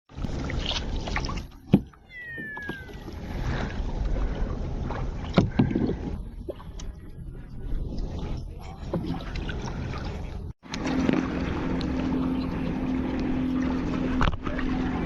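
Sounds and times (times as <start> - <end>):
water splashing around canoe: 0.1 - 15.0
short falling whistle: 2.1 - 3.1.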